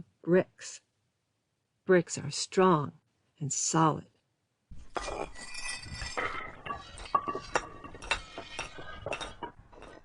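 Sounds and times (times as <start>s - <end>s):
bricks clinking and knocking: 4.7s - 10.0s.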